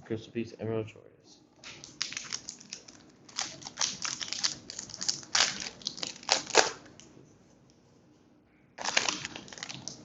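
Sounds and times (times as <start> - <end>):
foil wrapper crinkling: 1.6 - 7.0, 8.8 - 10.0.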